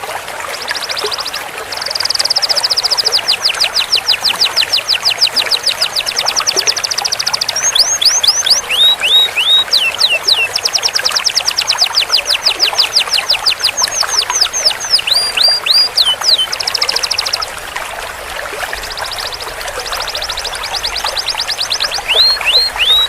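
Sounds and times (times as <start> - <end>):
canary singing trills: 0.5 - 17.6, 18.6 - 23.0.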